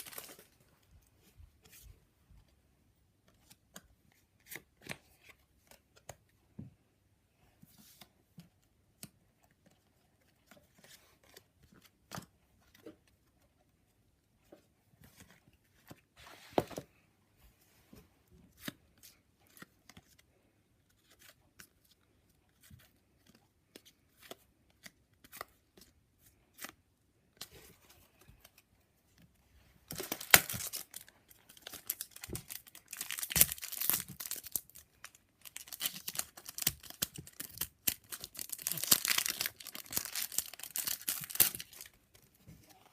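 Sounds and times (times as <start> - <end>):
foil packet torn and crumpled: 30.0 - 34.8, 35.5 - 41.9.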